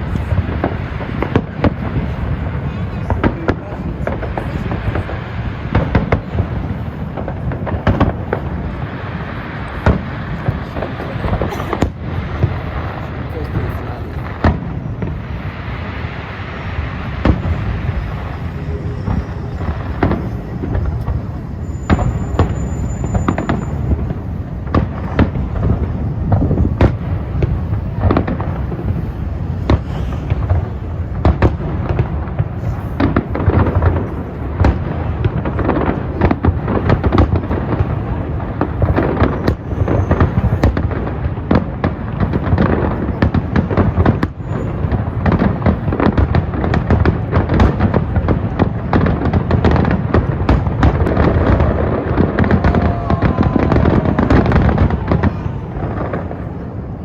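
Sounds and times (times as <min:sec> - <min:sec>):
fireworks bangs and crackles: 0:00.0 - 0:57.0
low rumble: 0:14.7 - 0:32.6.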